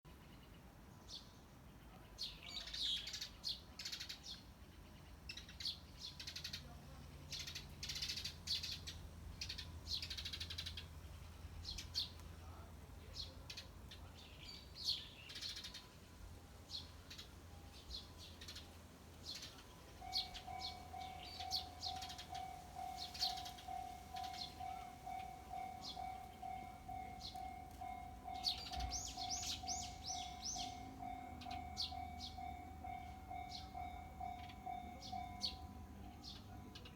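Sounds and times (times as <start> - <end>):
small birds chirping: 0.2 - 16.0, 16.7 - 36.9
faintly pulsing steady tone: 15.8 - 36.9.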